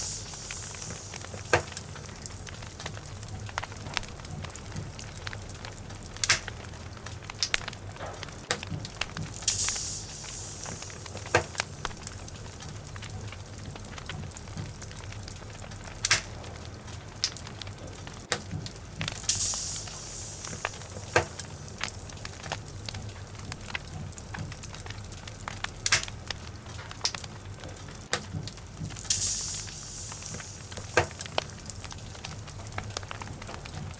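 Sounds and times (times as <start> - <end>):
high hissing bursts: 0.0 - 2.9, 9.3 - 12.6, 19.1 - 22.4, 29.0 - 32.0
steady low rumble: 0.0 - 17.7
logs crackling and popping: 0.0 - 33.9.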